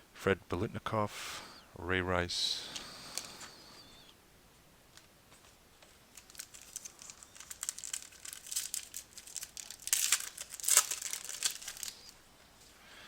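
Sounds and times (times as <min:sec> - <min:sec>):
foil wrapper crinkling and tearing: 0:06.1 - 0:12.2.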